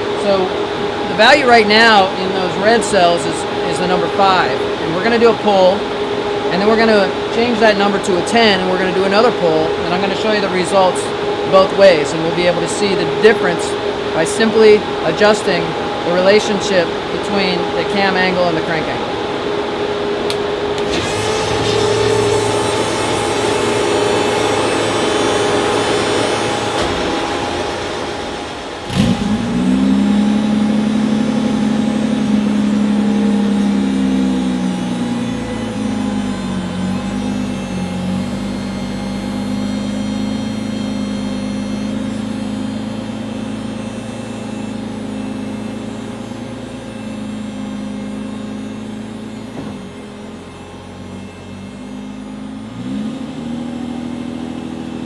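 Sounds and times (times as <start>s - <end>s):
car engine revving: 18.8s - 55.0s
engine pop: 25.5s - 30.2s.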